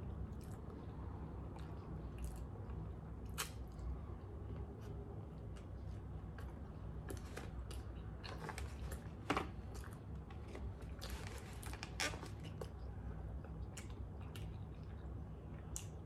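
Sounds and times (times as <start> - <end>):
person chewing food: 12.3 - 16.0.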